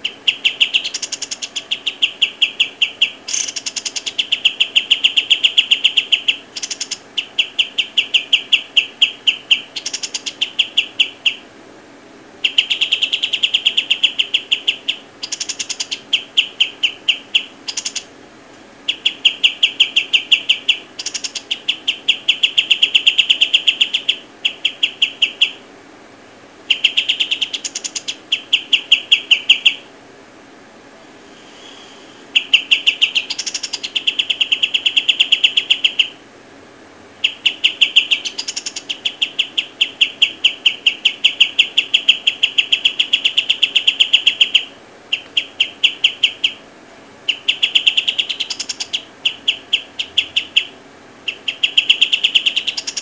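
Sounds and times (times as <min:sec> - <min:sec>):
bird trilling chirps: 0:00.0 - 0:11.5, 0:12.4 - 0:18.2, 0:18.8 - 0:25.7, 0:26.6 - 0:29.9, 0:31.2 - 0:36.2, 0:37.1 - 0:46.7, 0:47.3 - 0:53.0.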